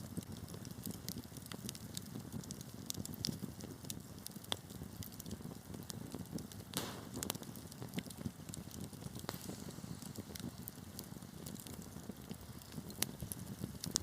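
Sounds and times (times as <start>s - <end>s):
fire crackling and popping: 0.0s - 14.0s
fire rumbling: 0.0s - 14.0s.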